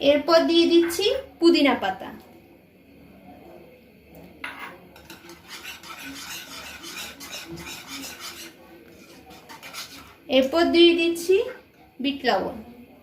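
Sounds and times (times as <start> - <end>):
utensil scraping pot of syrup: 4.5 - 10.6.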